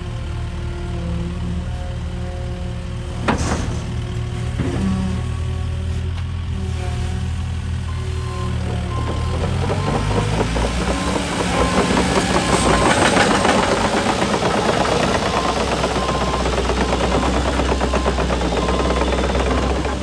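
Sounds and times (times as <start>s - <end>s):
excavator diesel engine clattering: 0.1s - 20.0s.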